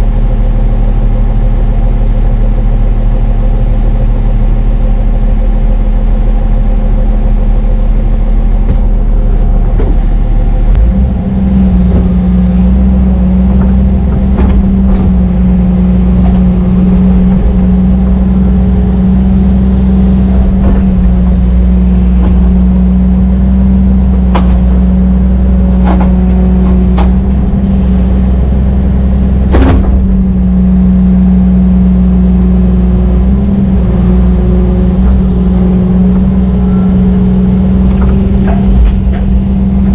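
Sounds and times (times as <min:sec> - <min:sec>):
excavator diesel engine running: 0:00.0 - 0:39.9
sharp metallic knocks: 0:09.6 - 0:27.8.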